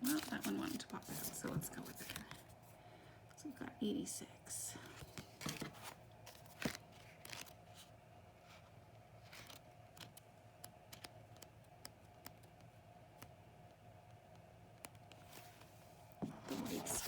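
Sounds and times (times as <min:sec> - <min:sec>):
paper pages rustling: 0:00.0 - 0:02.5, 0:05.0 - 0:07.9, 0:09.2 - 0:10.2, 0:15.2 - 0:17.0.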